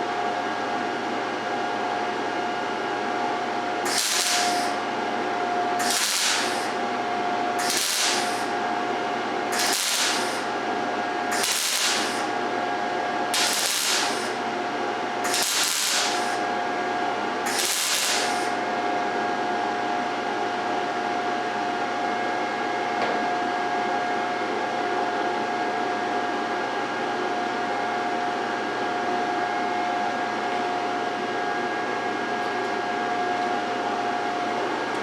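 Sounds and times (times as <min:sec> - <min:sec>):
welder cooling fan hum: 0:02.2 - 0:20.9
welder arc crackling: 0:03.9 - 0:12.7, 0:13.3 - 0:18.7.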